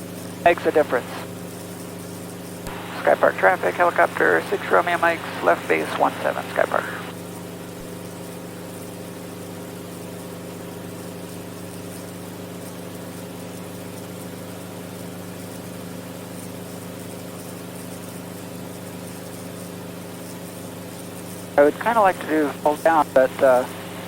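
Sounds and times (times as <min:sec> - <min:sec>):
helicopter engine and rotors: 0:00.0 - 0:09.3, 0:17.0 - 0:24.0.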